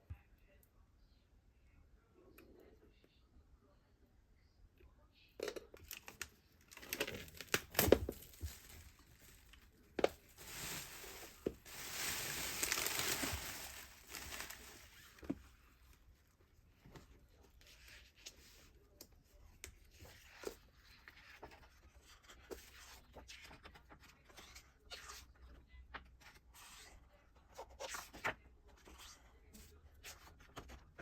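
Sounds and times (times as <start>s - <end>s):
packaging crinkling: 5.9s - 15.2s
packaging tearing: 10.2s - 15.1s.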